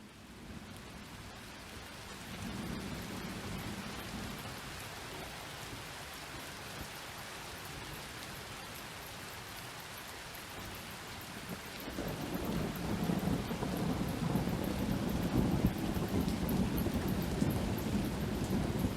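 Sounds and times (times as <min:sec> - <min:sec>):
low rumble of thunder: 0:00.0 - 0:06.0, 0:10.6 - 0:18.9
steady rain falling: 0:00.0 - 0:18.9.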